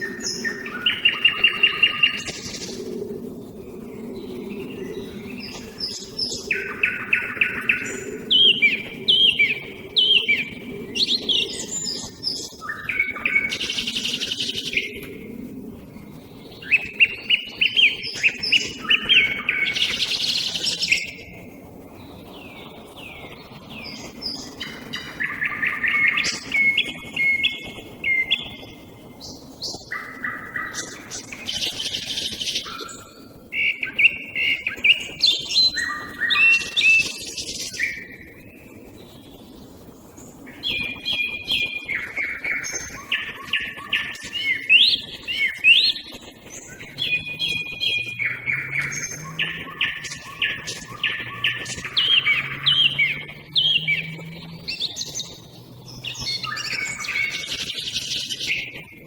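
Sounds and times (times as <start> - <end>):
nightingale singing: 0.0 - 2.9, 4.1 - 15.2, 16.1 - 21.3, 22.0 - 38.2, 40.4 - 58.9
thrush singing: 46.8 - 55.3.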